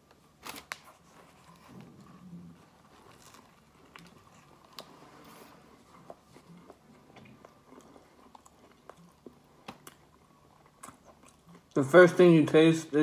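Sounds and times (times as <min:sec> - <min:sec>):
chewing with wet mouth clicks: 0:05.9 - 0:11.8.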